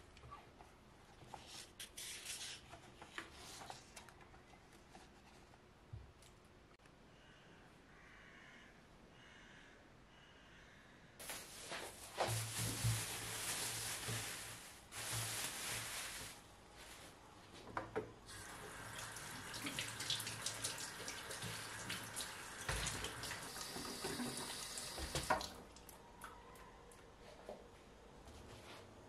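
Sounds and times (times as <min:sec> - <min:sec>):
water running: 0:18.3 - 0:26.0.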